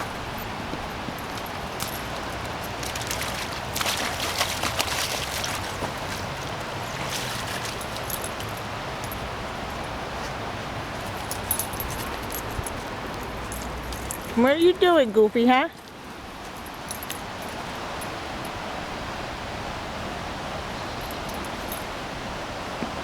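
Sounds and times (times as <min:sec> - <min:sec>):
dog splashing through water: 0:00.0 - 0:14.5
steady outdoor hiss: 0:00.0 - 0:23.0.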